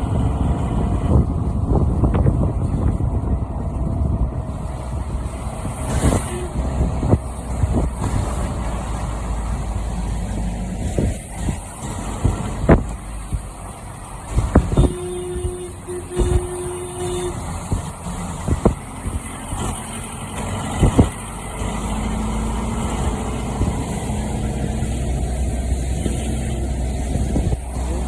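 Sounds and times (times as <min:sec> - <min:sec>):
low engine drone: 0:00.0 - 0:28.0
vehicle engines running: 0:00.0 - 0:28.0
horn-like note: 0:06.1 - 0:06.6, 0:14.7 - 0:17.4.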